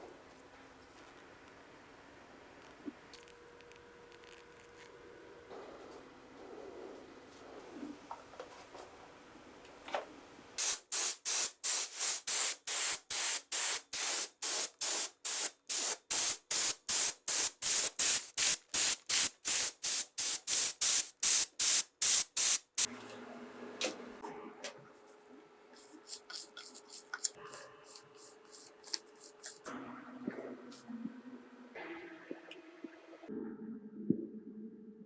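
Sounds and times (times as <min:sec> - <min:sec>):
spray paint can hissing: 0:10.6 - 0:22.9, 0:26.1 - 0:29.7.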